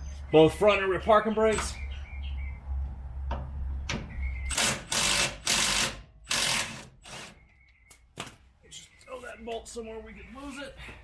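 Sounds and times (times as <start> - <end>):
cordless power tool bursts: 4.5 - 7.4.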